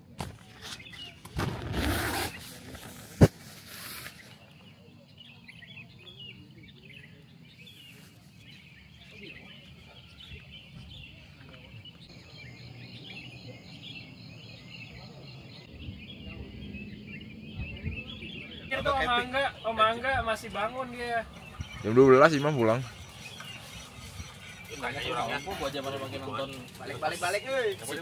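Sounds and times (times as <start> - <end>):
small birds chirping: 0.0 - 28.0
rhythmic bird trill: 18.4 - 28.0.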